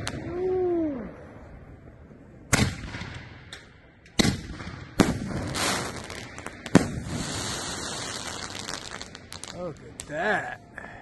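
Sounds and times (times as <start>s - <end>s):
firework booms: 4.2s - 9.6s
crackling hiss of bursting stars: 5.1s - 11.0s.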